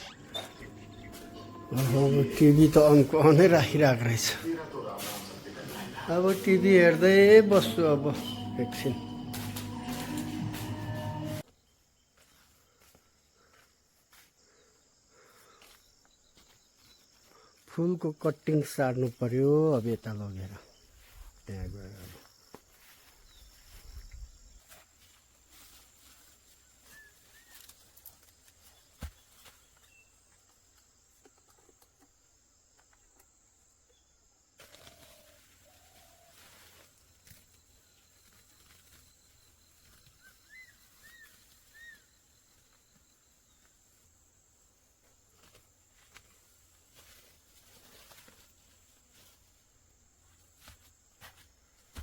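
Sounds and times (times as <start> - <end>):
faint bird chirps: 0.0 - 3.4, 25.7 - 28.0, 34.8 - 43.7
crickets trilling: 0.0 - 10.9, 29.8 - 51.2.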